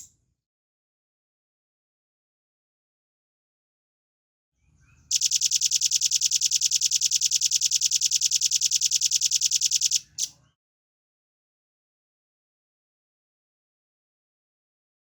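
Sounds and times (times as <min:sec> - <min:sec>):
bird singing high trill: 0:05.1 - 0:10.3.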